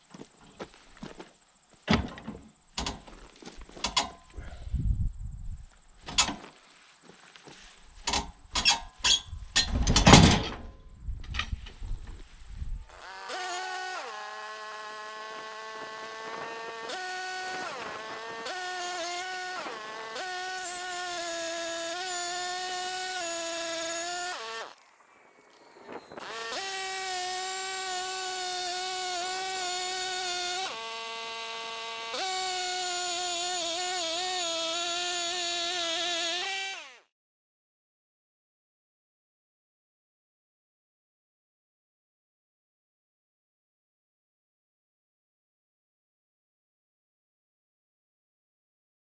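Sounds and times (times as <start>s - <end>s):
band sawmill whining: 12.8s - 37.0s.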